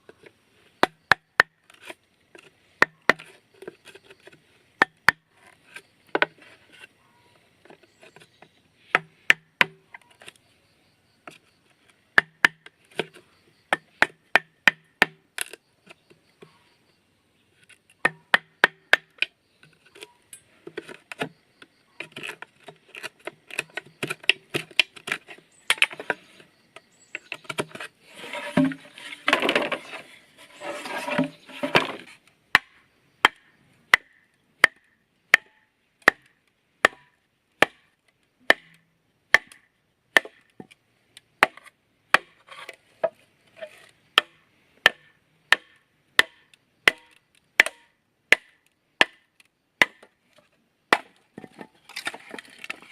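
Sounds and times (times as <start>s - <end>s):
blade chopping bamboo: 9.0s - 9.8s, 12.2s - 13.1s, 13.7s - 15.6s, 18.0s - 19.3s, 32.6s - 40.5s, 41.4s - 43.2s, 44.2s - 50.1s, 50.9s - 52.8s.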